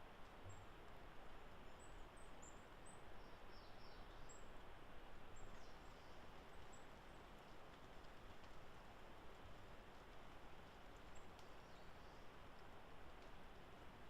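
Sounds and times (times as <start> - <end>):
woodland background hiss: 0.0 - 14.0.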